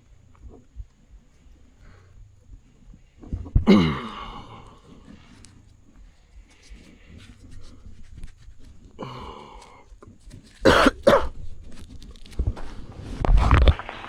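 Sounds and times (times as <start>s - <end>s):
person coughing: 3.6s - 4.6s, 10.6s - 11.4s.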